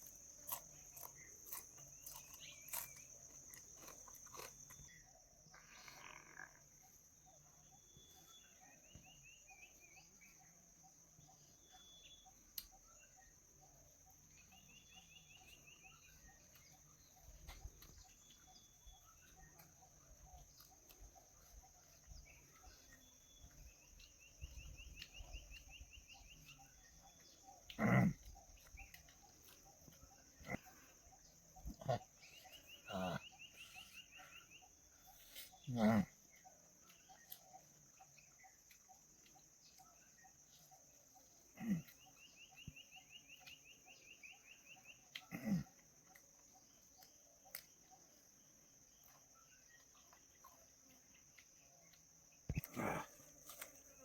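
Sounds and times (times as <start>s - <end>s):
bird trill: 11.6s - 36.0s.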